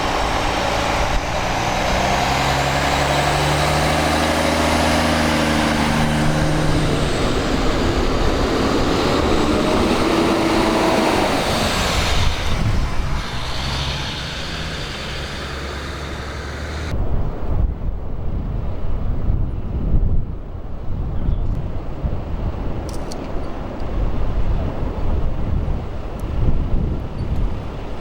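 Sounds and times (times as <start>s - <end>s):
heavy engine running: 0.0s - 16.9s.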